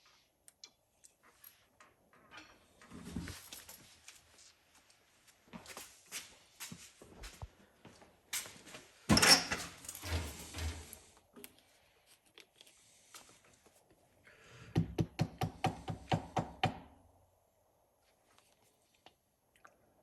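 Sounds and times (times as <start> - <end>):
loud clatter or scrape: 9.1 - 11.1.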